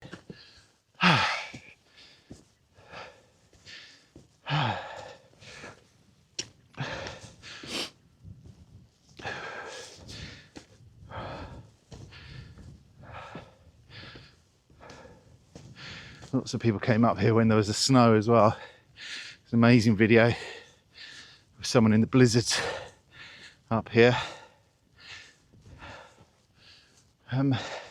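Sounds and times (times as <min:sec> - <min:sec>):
person breathing hard: 0:00.0 - 0:05.9, 0:06.8 - 0:08.0, 0:09.2 - 0:16.3, 0:20.4 - 0:21.6, 0:22.6 - 0:27.9
voiced sigh: 0:01.0 - 0:01.7, 0:04.5 - 0:05.8.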